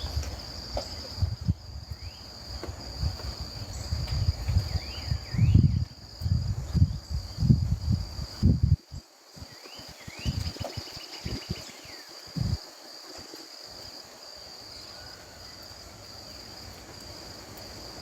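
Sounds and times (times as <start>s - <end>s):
wind rumbling on microphone: 0.0s - 13.9s
insect trill: 0.0s - 18.0s
birds chirping: 3.6s - 5.9s, 9.4s - 12.3s.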